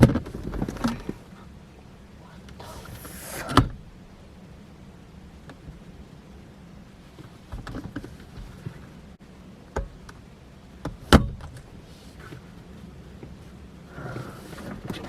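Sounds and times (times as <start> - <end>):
steady low hum: 0.0 - 15.0
car interior clicks and knocks: 7.2 - 8.8, 10.8 - 11.6
car door thump: 10.8 - 11.5.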